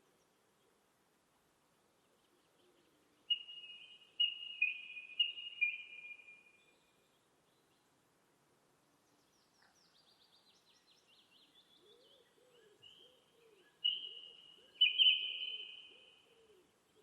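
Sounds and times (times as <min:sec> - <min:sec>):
lower bird calls: 0:02.0 - 0:07.0, 0:09.4 - 0:17.0
songbird singing high trill: 0:03.3 - 0:07.0, 0:09.3 - 0:16.2.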